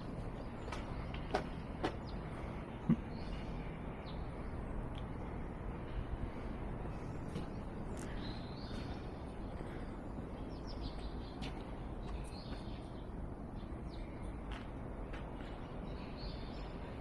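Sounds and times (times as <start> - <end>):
low outdoor background hum: 0.0 - 17.0
small birds chirping: 0.0 - 17.0.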